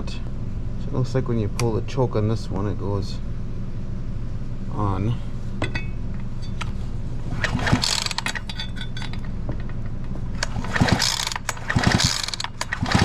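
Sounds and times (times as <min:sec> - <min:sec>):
engine turning over without firing: 0:07.3 - 0:08.6, 0:10.4 - 0:13.0
chainsaw recoil starter pulled: 0:07.4 - 0:08.6, 0:10.4 - 0:13.0.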